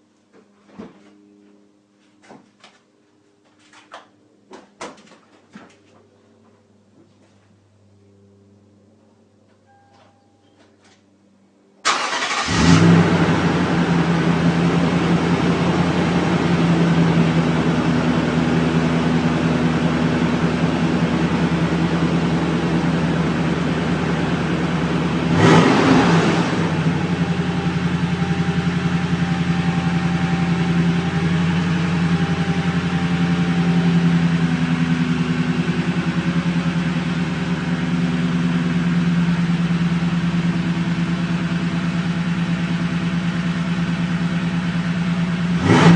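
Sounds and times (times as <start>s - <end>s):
truck engine starting and idling: 11.8s - 45.9s.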